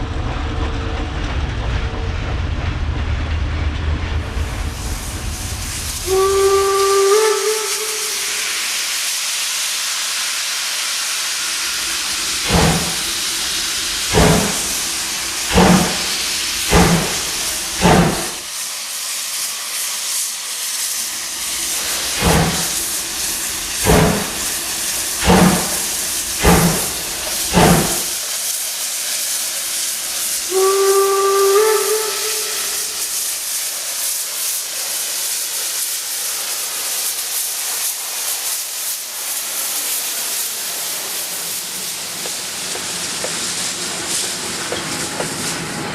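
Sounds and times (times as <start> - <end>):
hiss of escaping steam: 4.5 - 45.9
steam locomotive whistle: 6.0 - 8.8, 30.5 - 33.2
locomotive exhaust chuffs: 12.0 - 18.4, 21.6 - 28.2.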